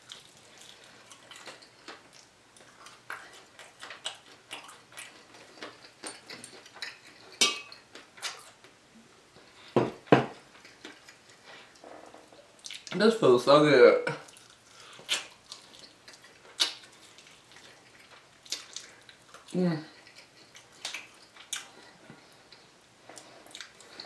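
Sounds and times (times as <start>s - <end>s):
crunchy chewing: 0.0s - 7.4s, 14.3s - 24.0s.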